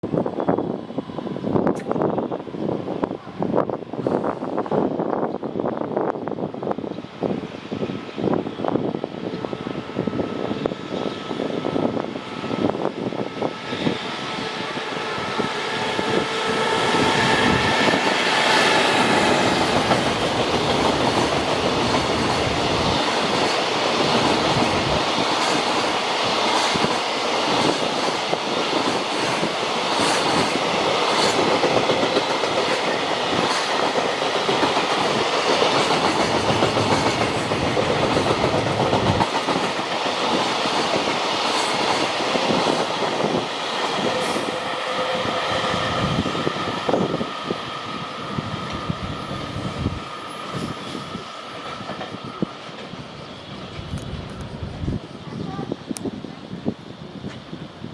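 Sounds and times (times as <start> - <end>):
electric locomotive whine: 0.0 - 57.9
wheels clacking over rail joints: 17.8 - 43.3.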